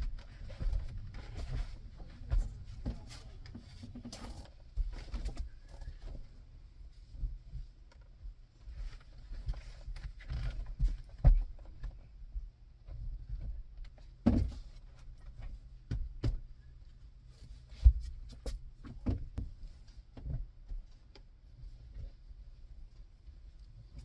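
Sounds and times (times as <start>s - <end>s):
knocks and thumps: 14.2s - 14.8s, 17.7s - 20.4s.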